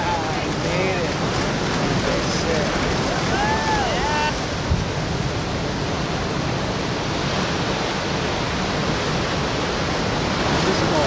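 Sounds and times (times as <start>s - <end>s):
ocean surf: 0.0s - 11.0s
wind: 0.0s - 11.0s.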